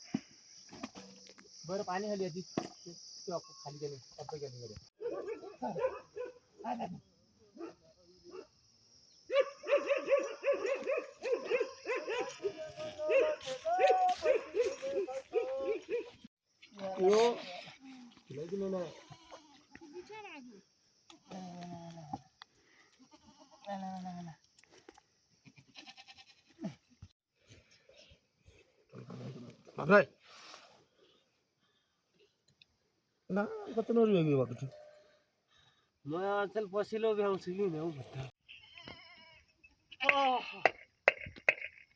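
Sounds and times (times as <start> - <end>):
high insect chirring: 0.2 - 4.9
dog barking: 5.0 - 6.4, 7.6 - 8.5, 9.3 - 16.2
goat bleating: 23.0 - 24.0, 25.4 - 26.7, 38.5 - 39.4.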